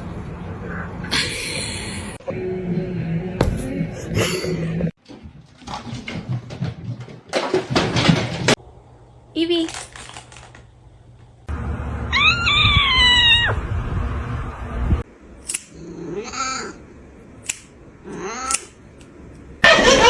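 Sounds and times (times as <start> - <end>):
cat meowing: 12.1 - 13.6
sharp clicks: 17.4 - 17.7.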